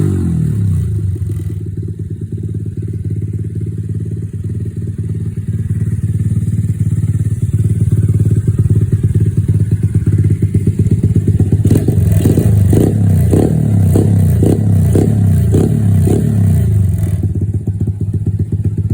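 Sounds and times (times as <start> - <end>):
minibike engine running and revving: 0.0 - 18.9.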